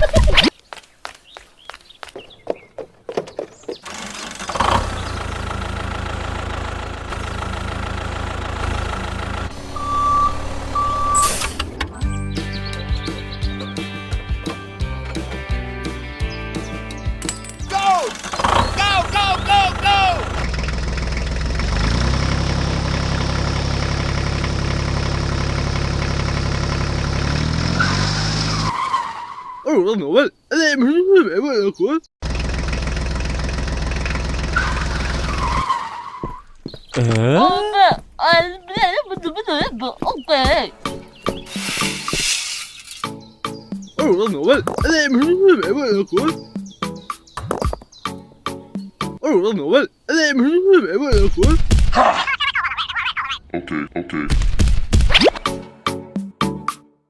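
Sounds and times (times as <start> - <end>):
engine-like running sound: 3.8 - 12.0, 17.8 - 27.8, 32.2 - 35.6
short beeps: 9.8 - 11.5.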